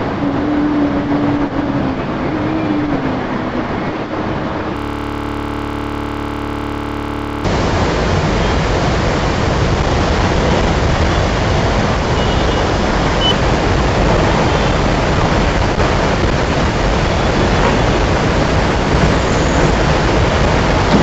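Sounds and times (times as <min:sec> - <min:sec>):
heavy rain falling: 0:07.5 - 0:21.0.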